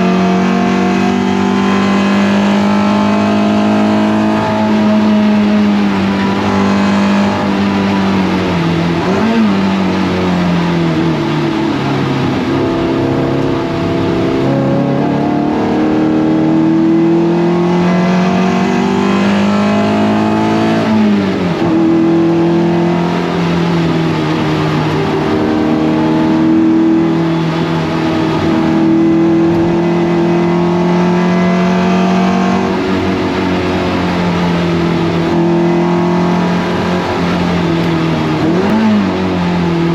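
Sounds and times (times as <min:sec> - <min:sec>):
race car engine accelerating: 0:00.0 - 0:39.9.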